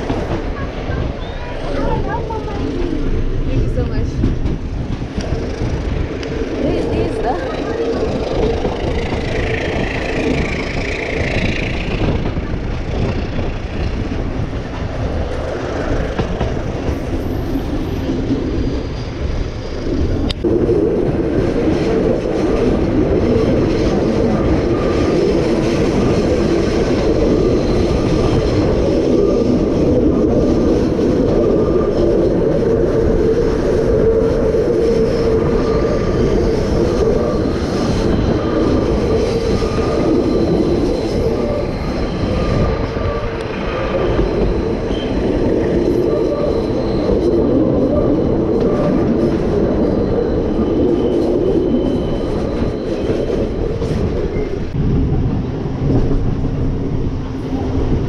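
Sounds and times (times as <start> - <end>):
passenger train rumbling on rails: 0.0 - 58.0.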